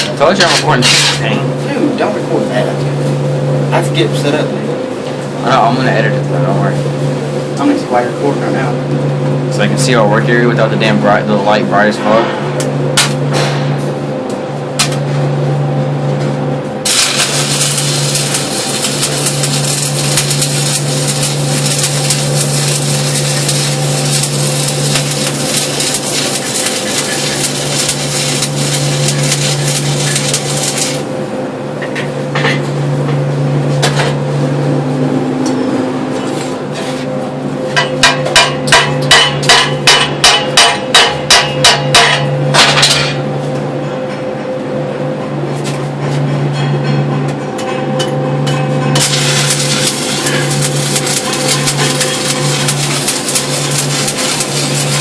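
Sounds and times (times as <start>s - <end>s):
low hum: 6.0s - 40.0s
welding arc crackling and hissing: 16.8s - 31.3s, 48.9s - 55.0s
sharp metal strikes: 37.8s - 43.2s.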